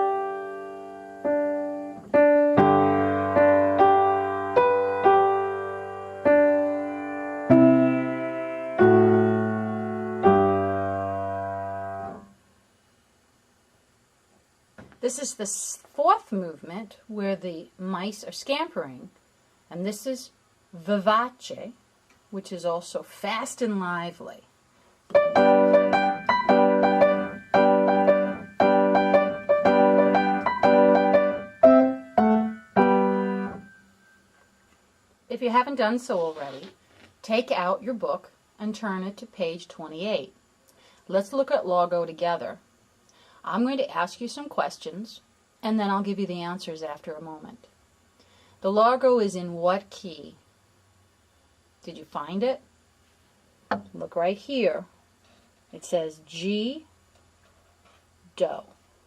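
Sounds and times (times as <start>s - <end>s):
slow piano melody: 0.0s - 12.2s, 25.2s - 34.2s
fast lively piano: 25.2s - 33.6s.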